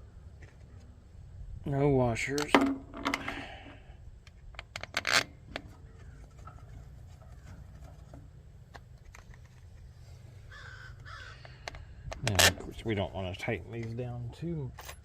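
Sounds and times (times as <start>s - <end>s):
screws and cover clicking: 4.6s - 8.1s.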